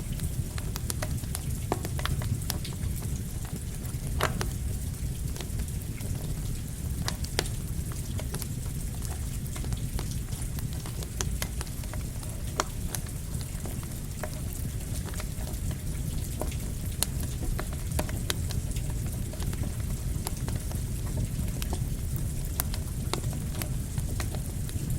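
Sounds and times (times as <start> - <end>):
campfire crackling and popping: 0.0 - 24.9
rain hissing: 0.0 - 24.9.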